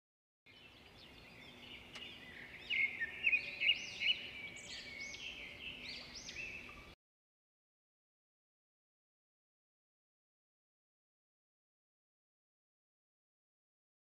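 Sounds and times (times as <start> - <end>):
birds chirping and twittering: 0.5 - 7.0.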